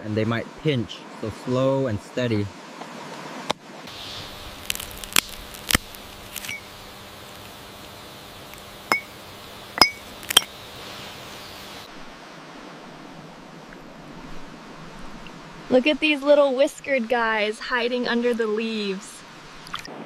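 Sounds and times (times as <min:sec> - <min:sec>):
steady background hiss: 0:00.0 - 0:20.0
clinks and taps of container: 0:08.9 - 0:09.1.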